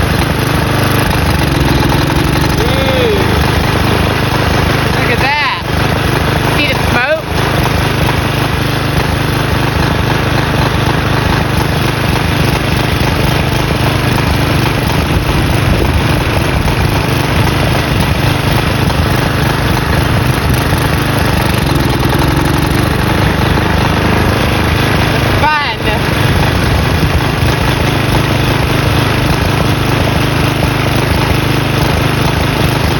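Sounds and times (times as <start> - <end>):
lawn mower engine running: 0.0 - 32.9.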